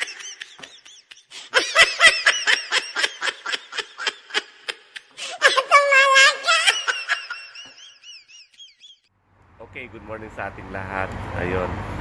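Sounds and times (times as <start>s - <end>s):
person laughing: 0.0s - 9.0s.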